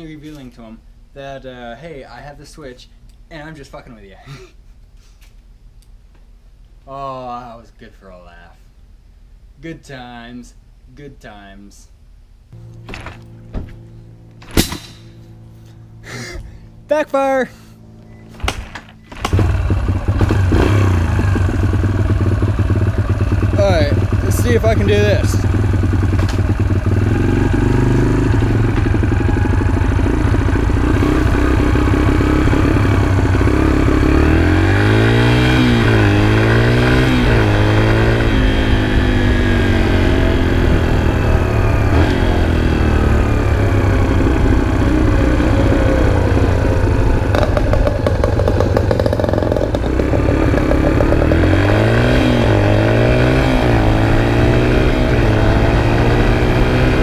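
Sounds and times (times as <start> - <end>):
dirt bike engine revving: 19.1 - 57.0.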